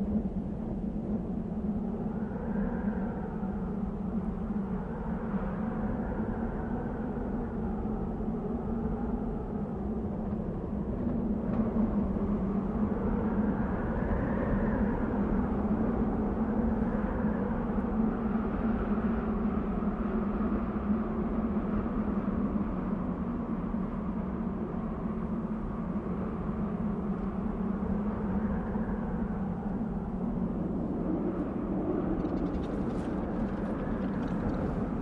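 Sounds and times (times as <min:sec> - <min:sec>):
wind blowing: 0:28.2 - 0:35.0.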